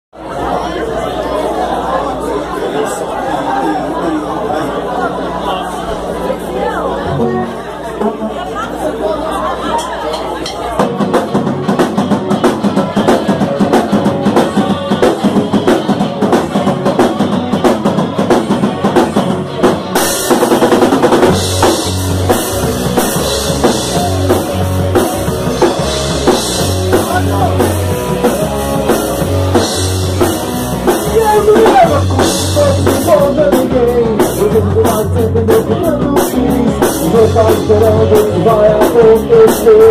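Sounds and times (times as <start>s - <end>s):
bass notes: 0.2s - 39.9s
rock band playing: 0.2s - 39.9s
drum kit: 10.1s - 39.9s.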